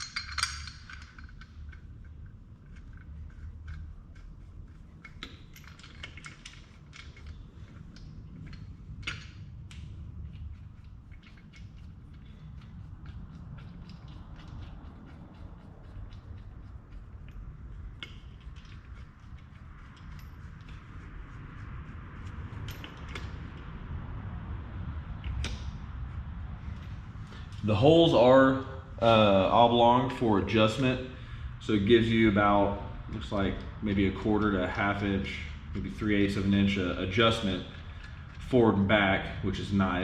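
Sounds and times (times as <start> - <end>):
metal parts clicking and knocking: 0.0 - 21.0, 22.5 - 23.6
low handling rumble: 0.0 - 40.0
low steady hum: 0.0 - 40.0.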